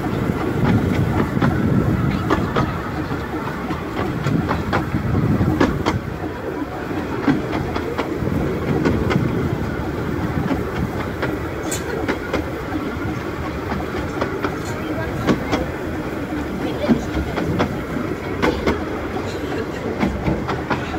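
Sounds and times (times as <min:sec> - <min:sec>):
miniature train rumbling on track: 0:00.0 - 0:20.9
wheels clicking over rails: 0:00.0 - 0:20.9.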